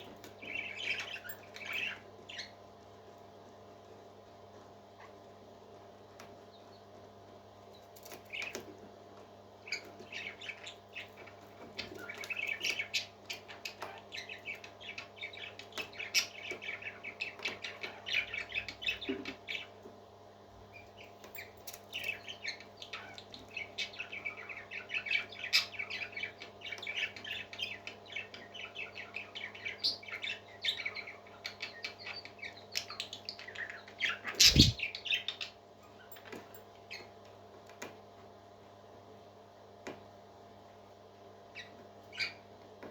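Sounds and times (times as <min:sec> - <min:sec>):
parrot chick chirping: 0:34.0 - 0:34.8
steady low hum: 0:34.4 - 0:34.8.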